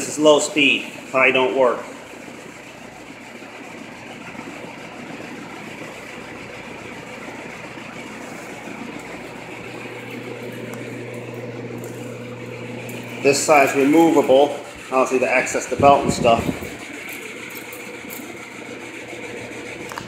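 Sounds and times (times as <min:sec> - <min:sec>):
low motor hum: 0:00.0 - 0:20.0
rush of air from fan: 0:15.6 - 0:16.8.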